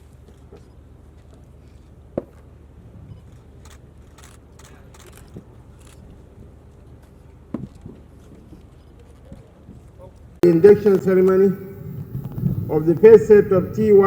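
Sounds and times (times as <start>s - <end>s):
sound system hum: 10.4s - 14.0s
microphone handling knocks: 10.6s - 14.0s.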